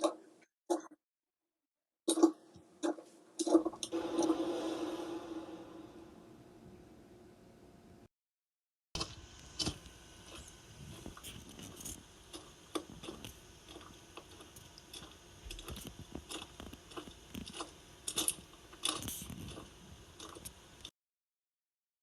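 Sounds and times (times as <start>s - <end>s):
clicks and crunches of small pieces: 11.2s - 20.6s.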